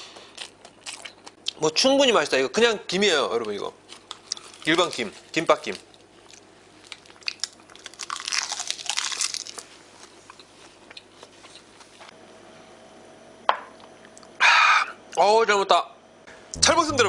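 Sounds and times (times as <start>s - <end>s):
person chewing crisp food: 0.0s - 1.6s, 3.8s - 5.1s, 5.7s - 12.0s.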